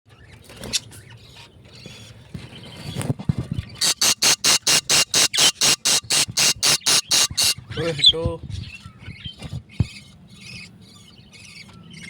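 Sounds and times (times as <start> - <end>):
baby birds begging calls: 3.8 - 8.2.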